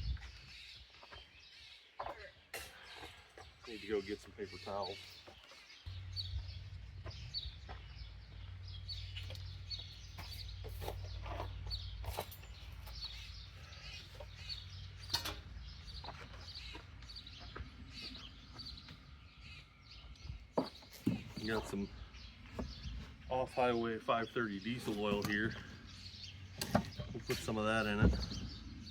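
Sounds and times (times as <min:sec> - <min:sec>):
steady low hum: 0:05.8 - 0:20.5.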